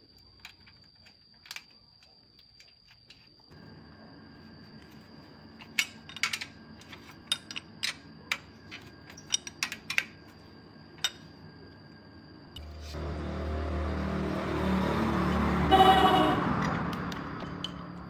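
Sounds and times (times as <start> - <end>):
faint hum with high whine: 0.0 - 14.0
small metal parts clicking: 0.3 - 3.3
loud steady pitched tone: 12.6 - 16.9.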